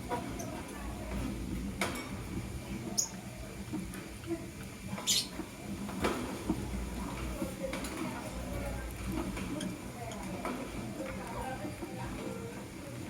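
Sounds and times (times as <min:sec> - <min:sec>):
lovebirds chirping: 0:05.0 - 0:05.4.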